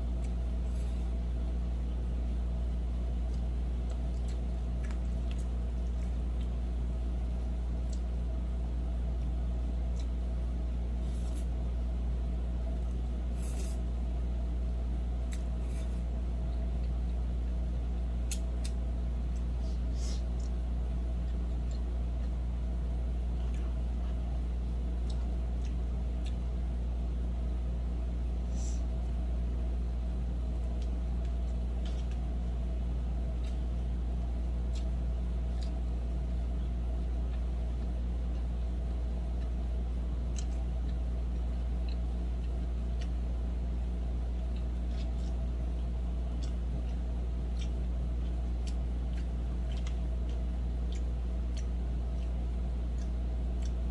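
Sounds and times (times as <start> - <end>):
steady low hum: 0.0 - 53.9
person eating: 2.5 - 8.3, 9.2 - 14.1, 15.2 - 17.6, 30.5 - 53.9.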